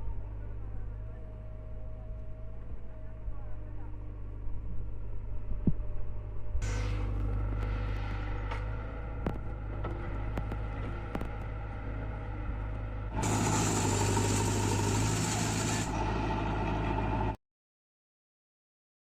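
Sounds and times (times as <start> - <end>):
diesel engine running: 0.0 - 17.4
loud hissing noise: 6.6 - 9.0, 13.2 - 16.0.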